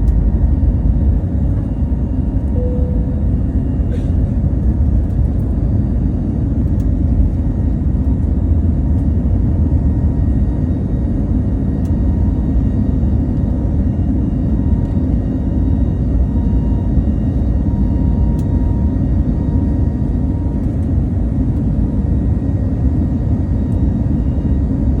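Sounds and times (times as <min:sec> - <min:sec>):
faint steady whine: 0:00.0 - 0:05.5
airliner engines rumbling: 0:00.0 - 0:25.0.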